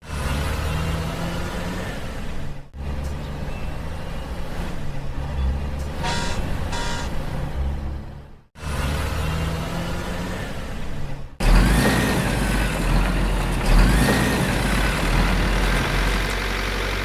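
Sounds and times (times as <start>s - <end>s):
truck engine rumble: 0.0s - 17.0s
short beeps: 6.0s - 7.1s.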